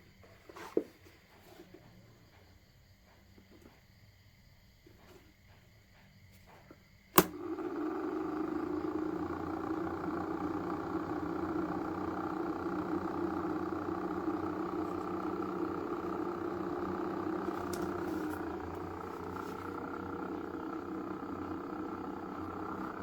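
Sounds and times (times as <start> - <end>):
small motor fan humming: 6.0 - 23.0.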